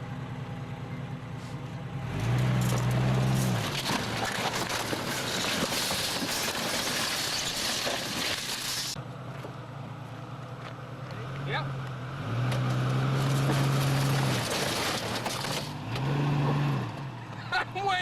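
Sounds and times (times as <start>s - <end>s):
car engine idling and revving: 0.0s - 5.8s, 8.9s - 18.0s.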